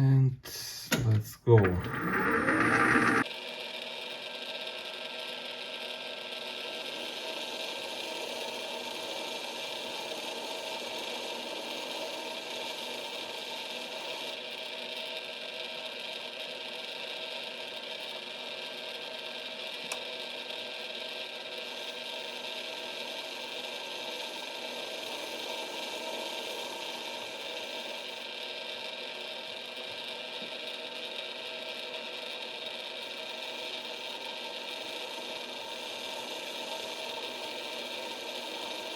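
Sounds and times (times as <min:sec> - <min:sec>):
lathe motor whine: 0:01.5 - 0:03.2.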